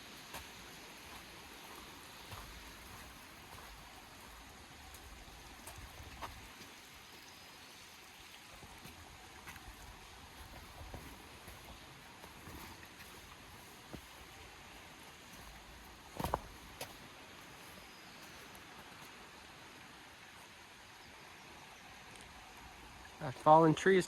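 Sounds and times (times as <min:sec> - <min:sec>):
river rushing: 0:00.0 - 0:07.1.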